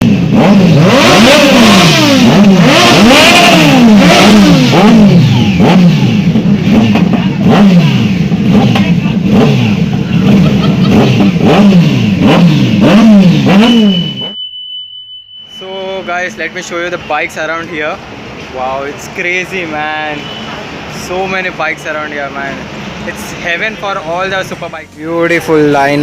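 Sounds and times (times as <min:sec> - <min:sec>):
motorcycle engines revving: 0:00.0 - 0:14.4.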